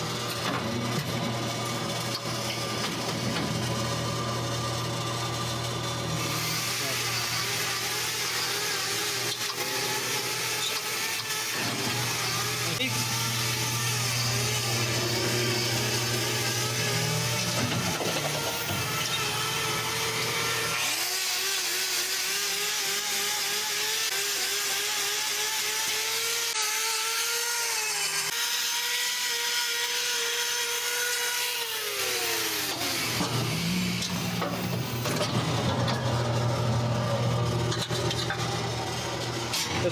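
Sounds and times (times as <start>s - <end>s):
power tool motor whining: 0.0s - 39.9s.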